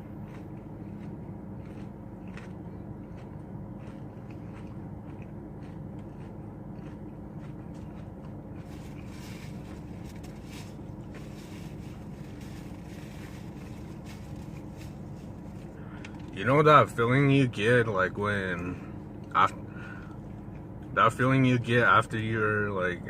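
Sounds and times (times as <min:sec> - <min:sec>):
chewing with mouth clicks: 0:00.0 - 0:10.4
steady low hum: 0:00.0 - 0:23.0.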